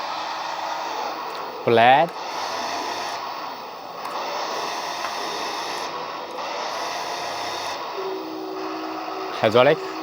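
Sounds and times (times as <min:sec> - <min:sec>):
hydraulic hissing and engine sound: 0:00.0 - 0:10.0
steady tone: 0:00.0 - 0:10.0.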